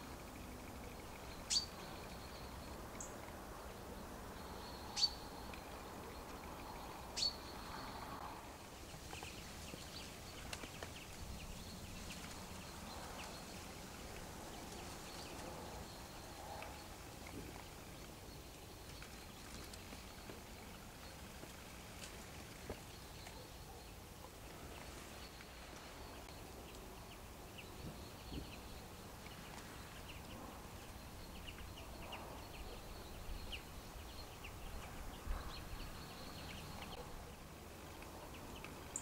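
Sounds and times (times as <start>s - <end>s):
sharp high-pitched bird calls: 1.5s - 1.8s
rustles in dry leaves: 8.4s - 23.2s.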